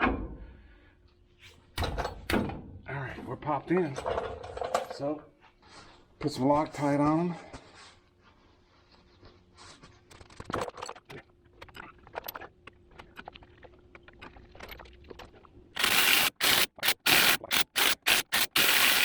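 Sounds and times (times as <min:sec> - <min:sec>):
metal bolts clicking and scraping: 0:03.9 - 0:05.2, 0:15.8 - 0:19.0
impact wrench bursts: 0:15.8 - 0:19.0.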